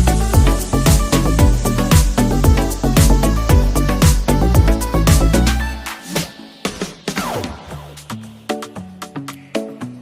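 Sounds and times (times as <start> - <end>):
background music with percussion: 0.0 - 10.0.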